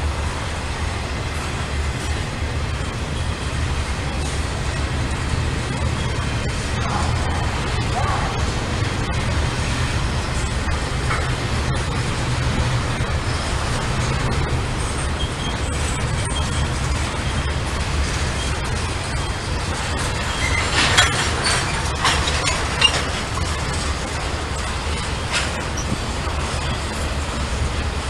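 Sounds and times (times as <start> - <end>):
freight train wheels rumbling: 0.0 - 28.0
metallic squeals and clanks: 14.8 - 17.6, 18.4 - 24.0.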